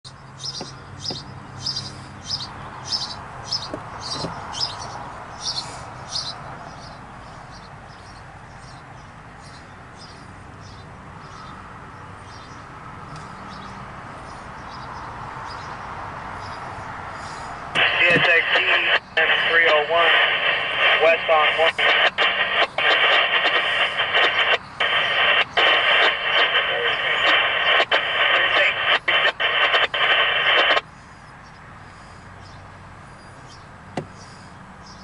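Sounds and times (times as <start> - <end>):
bird chirping: 0.1 - 17.6.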